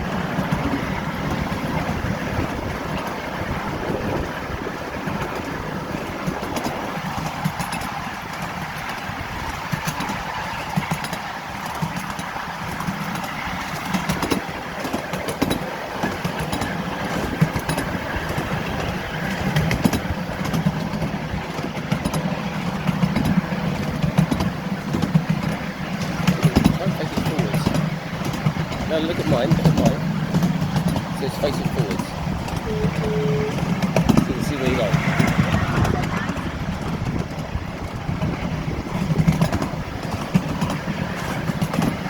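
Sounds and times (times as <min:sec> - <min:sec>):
miniature train engine drone: 0:00.0 - 0:42.0.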